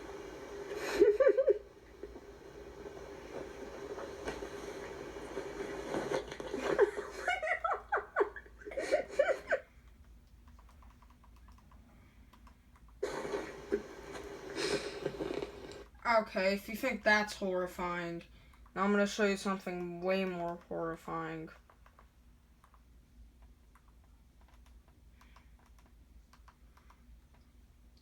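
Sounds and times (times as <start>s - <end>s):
steady hum: 0.0s - 28.0s
person laughing: 0.7s - 1.7s, 6.1s - 9.7s, 13.0s - 15.7s.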